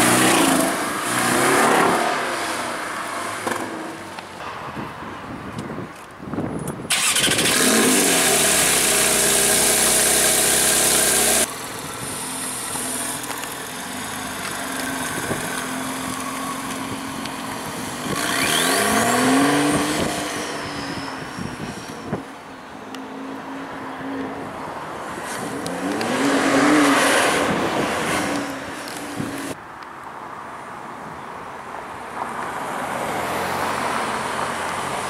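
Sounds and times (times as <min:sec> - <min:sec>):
car engines accelerating hard: 0:06.9 - 0:11.6, 0:12.5 - 0:20.7, 0:25.1 - 0:29.6.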